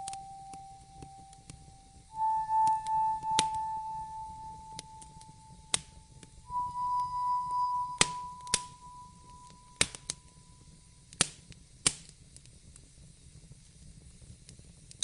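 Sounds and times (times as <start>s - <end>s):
clear high tone: 0.0s - 10.5s
wood fire crackling: 9.4s - 10.2s, 11.1s - 12.9s
sharp pops of fire: 11.2s - 12.5s.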